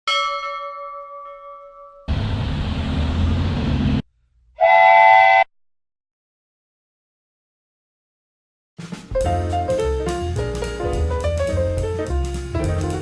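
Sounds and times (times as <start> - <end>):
ringing tone: 0.1 - 2.1
low train-like rumbling: 2.1 - 4.0.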